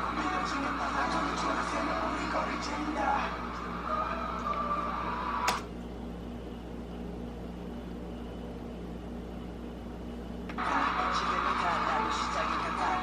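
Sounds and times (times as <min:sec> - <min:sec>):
music playing: 0:00.0 - 0:05.4, 0:10.6 - 0:13.0
low room hum: 0:00.0 - 0:13.0.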